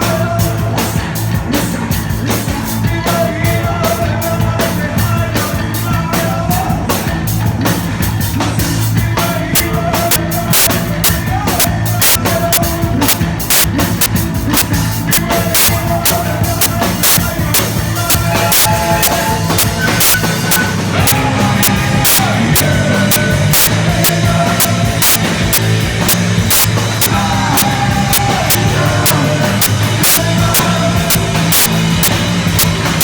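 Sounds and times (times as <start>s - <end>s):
drums and cymbals: 0.0s - 33.0s
live rock band: 0.0s - 33.0s
droning bass: 9.0s - 33.0s.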